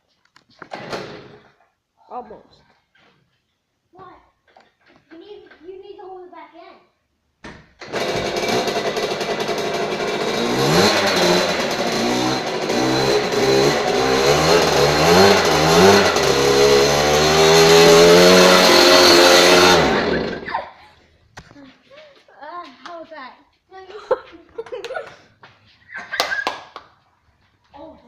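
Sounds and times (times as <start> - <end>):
dirt bike engine revving: 7.8 - 20.6
rear tire spinning: 7.8 - 20.8.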